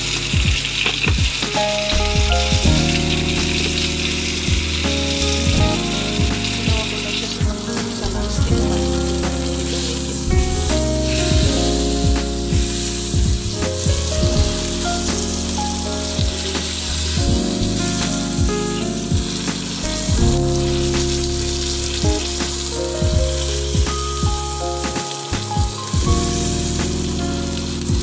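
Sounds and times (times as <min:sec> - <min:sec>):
background music: 0:00.0 - 0:28.0
fish sizzling in a pan: 0:02.8 - 0:13.8, 0:14.5 - 0:22.8, 0:26.3 - 0:27.9.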